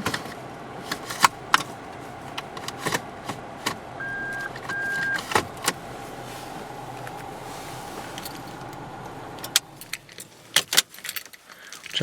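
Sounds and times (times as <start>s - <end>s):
faint engine idle: 0.0s - 12.0s
short beeps: 4.0s - 5.2s.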